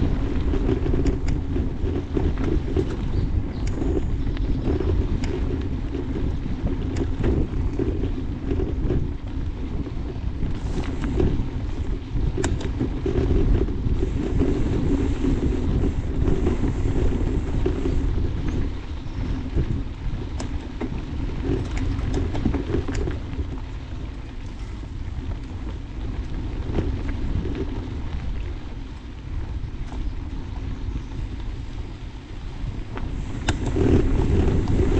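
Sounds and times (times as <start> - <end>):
sharp clicks and rattles: 0.0 - 30.5, 32.7 - 34.9
tyres rolling on dirt trail: 0.0 - 34.9
wind buffeting microphone: 0.0 - 34.9.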